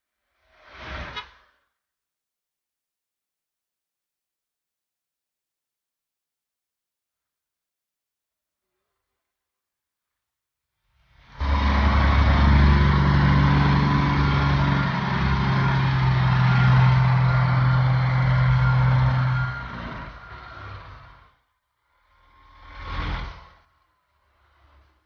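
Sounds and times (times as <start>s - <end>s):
vehicle engine humming: 11.4s - 21.2s.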